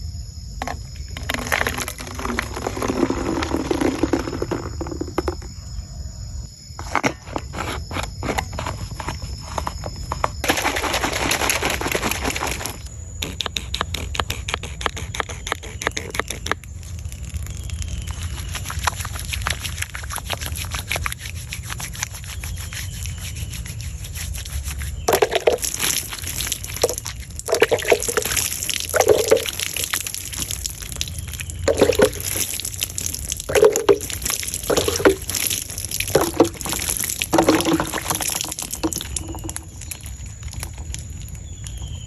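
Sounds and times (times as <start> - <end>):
water pouring and splashing: 1.2 - 5.1, 10.4 - 12.9, 18.0 - 42.0.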